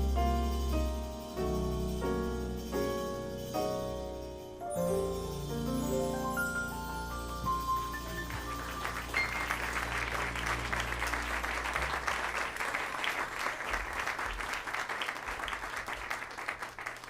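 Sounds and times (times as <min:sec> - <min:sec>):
band playing low notes: 0:00.0 - 0:12.7
audience applauding: 0:07.9 - 0:17.0.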